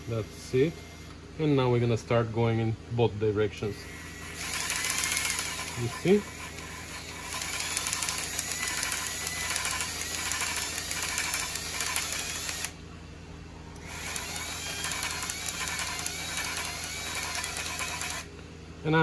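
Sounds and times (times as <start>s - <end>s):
cordless drill whirring: 0.0s - 1.2s, 3.6s - 12.8s, 13.8s - 18.3s.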